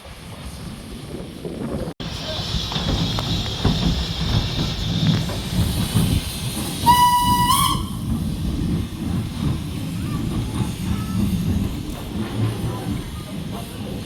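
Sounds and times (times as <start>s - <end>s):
steam hissing: 2.0s - 14.0s
steam locomotive whistle: 6.8s - 8.1s.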